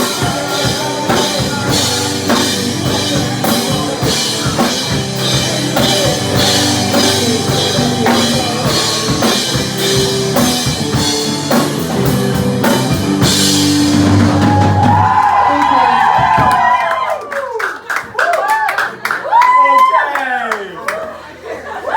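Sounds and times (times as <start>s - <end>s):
live rock band playing: 0.0s - 16.7s.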